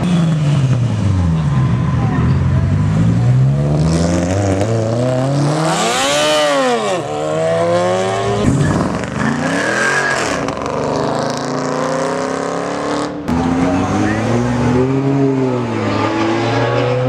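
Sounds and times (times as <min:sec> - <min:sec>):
car engine revving hard: 0:02.8 - 0:17.0.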